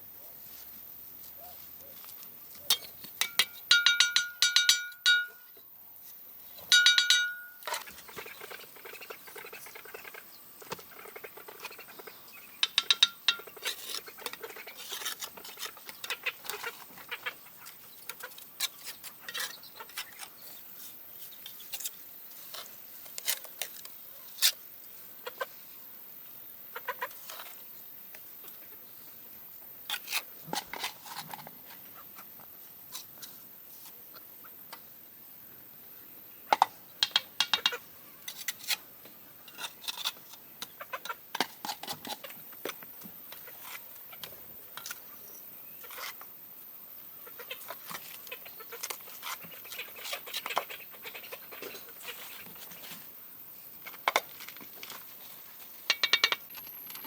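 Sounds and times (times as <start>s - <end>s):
chickens squawking: 47.2s - 52.5s.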